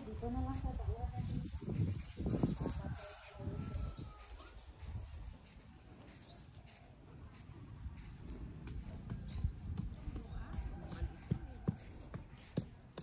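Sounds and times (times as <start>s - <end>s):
low outdoor rumble: 3.2s - 13.0s.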